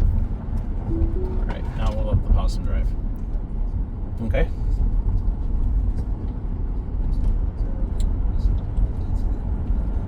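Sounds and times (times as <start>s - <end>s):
road and tyre rumble in car: 0.0s - 10.0s.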